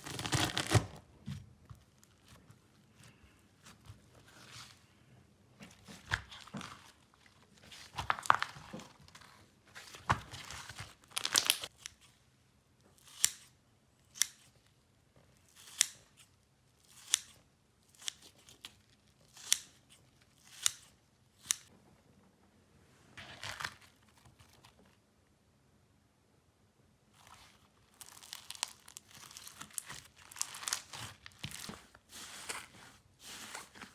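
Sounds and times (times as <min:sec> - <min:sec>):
slime squeezed and crackling: 0:00.0 - 0:00.8, 0:11.1 - 0:11.8, 0:28.0 - 0:31.7.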